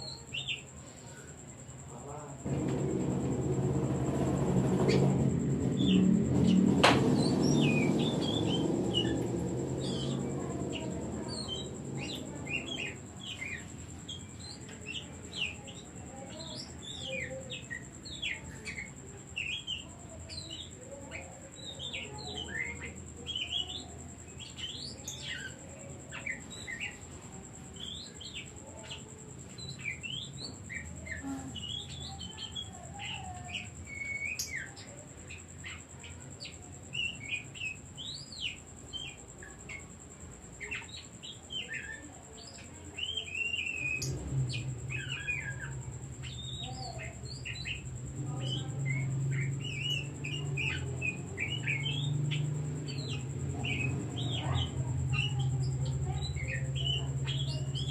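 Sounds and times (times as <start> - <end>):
bird singing whistled notes: 40.6 - 57.9.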